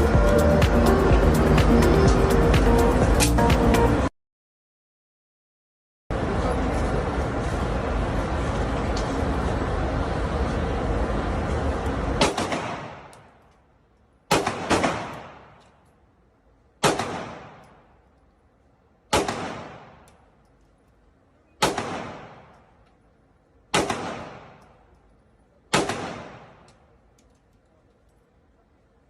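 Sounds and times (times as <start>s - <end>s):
gunshots with echo: 12.2s - 13.1s, 14.3s - 15.6s, 16.8s - 17.9s, 19.1s - 20.1s, 21.6s - 22.6s, 23.7s - 24.7s, 25.7s - 26.7s.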